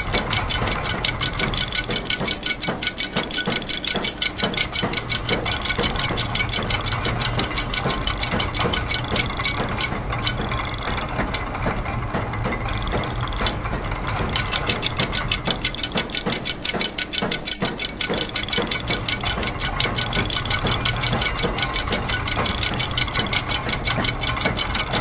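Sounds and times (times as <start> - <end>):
ratchet and gear clicks: 0.0 - 25.0.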